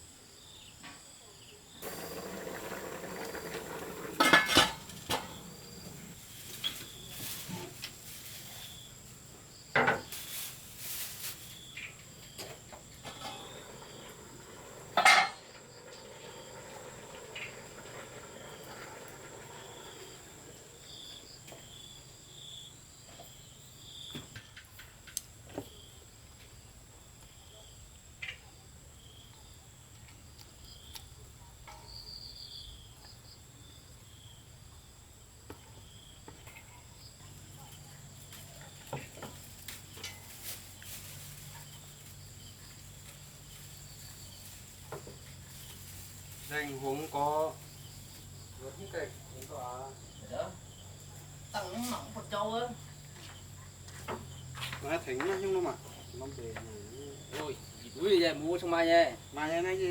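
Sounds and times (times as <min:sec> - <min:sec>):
insects droning high-pitched: 0:00.0 - 0:59.9.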